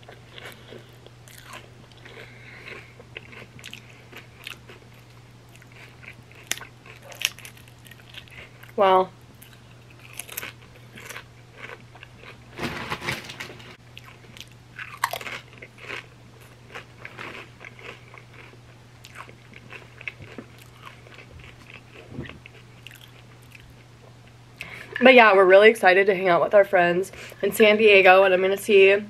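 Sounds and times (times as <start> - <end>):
chips crunching being chewed: 0.0 - 8.8, 9.4 - 12.4, 13.9 - 23.8.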